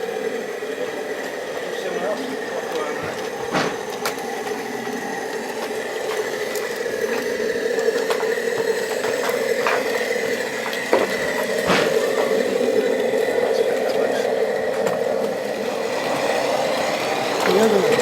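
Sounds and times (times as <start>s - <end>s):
mechanical drone: 0.0s - 18.0s
sharp clicks and knocks: 3.0s - 4.6s, 10.6s - 12.4s.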